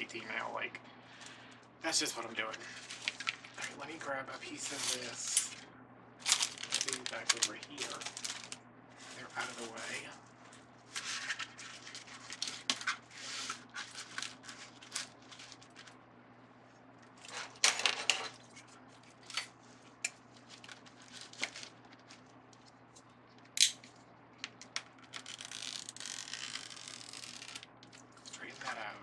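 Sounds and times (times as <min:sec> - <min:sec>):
plastic mesh rustling and crinkling: 0:06.2 - 0:10.2.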